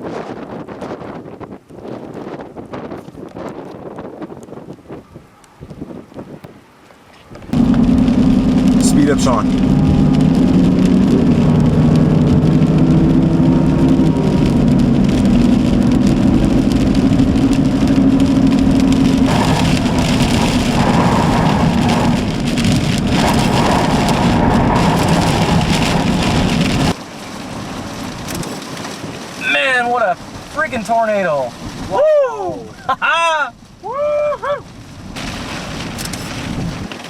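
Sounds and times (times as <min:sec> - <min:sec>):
rain and wind on moving car: 0:00.0 - 0:37.0
car engine: 0:07.4 - 0:27.6.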